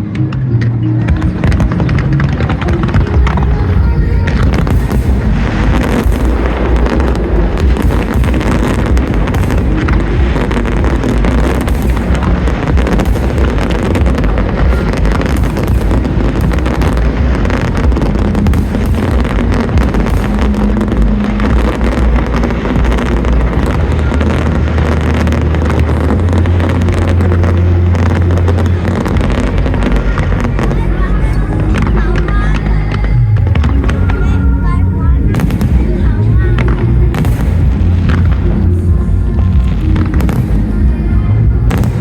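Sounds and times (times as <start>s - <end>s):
deep fireworks booms: 0.0s - 42.0s
fireworks bangs and crackling: 0.0s - 42.0s
music with bass notes: 0.0s - 42.0s.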